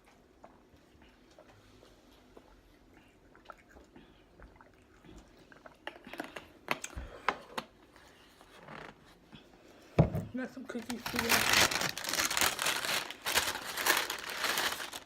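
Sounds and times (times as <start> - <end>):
faint eating sounds: 0.0 - 15.0
food packaging crackling: 10.7 - 15.0.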